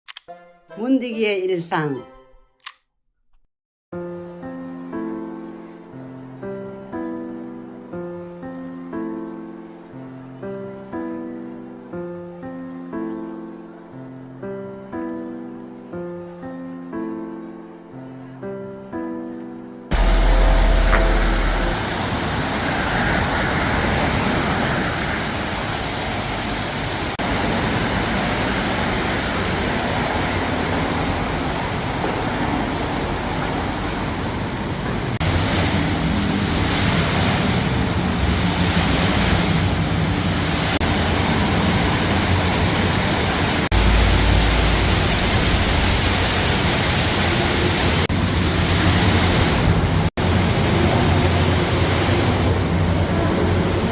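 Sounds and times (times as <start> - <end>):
deep rumble: 19.9 - 23.4, 43.7 - 47.2
loud steady rushing noise: 19.9 - 53.9.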